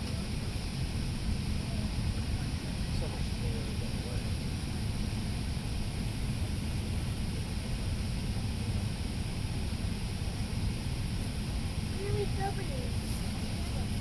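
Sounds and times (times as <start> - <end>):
aircraft cabin engine rumble: 0.0 - 14.0.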